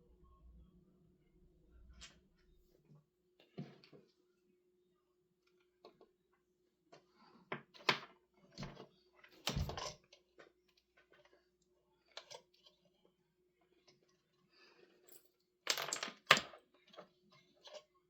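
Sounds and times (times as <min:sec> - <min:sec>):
clicks and knocks of objects: 0:07.6 - 0:11.4.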